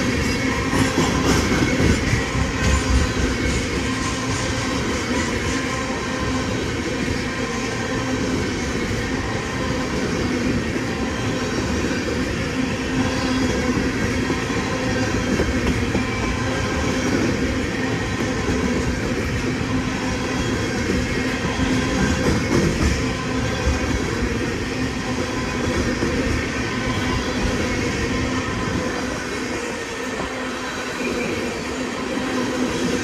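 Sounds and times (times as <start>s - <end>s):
freight train wheels rumbling: 0.0s - 33.0s.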